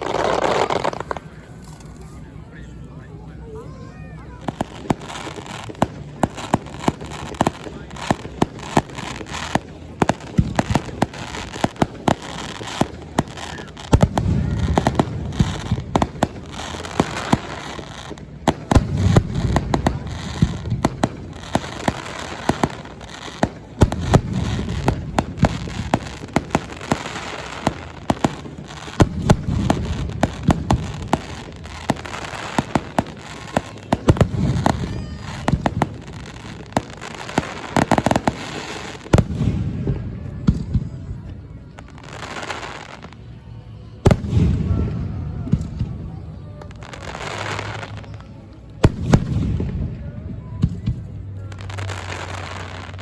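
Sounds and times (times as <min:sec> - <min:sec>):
fireworks shells booming: 0:00.0 - 0:02.2, 0:04.4 - 0:41.1
fireworks crackling pops: 0:00.0 - 0:02.7, 0:03.6 - 0:43.4, 0:44.0 - 0:53.0.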